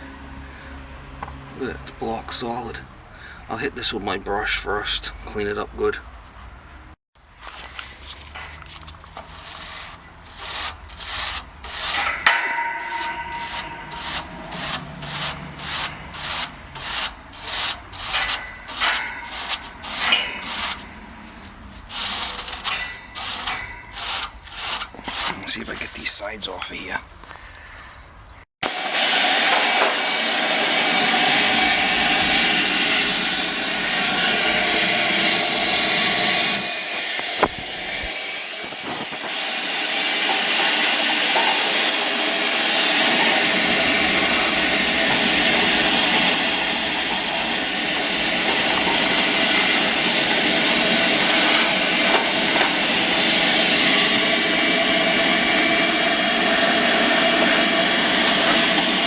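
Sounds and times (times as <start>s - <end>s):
vacuum motor running: 28.6s - 59.0s.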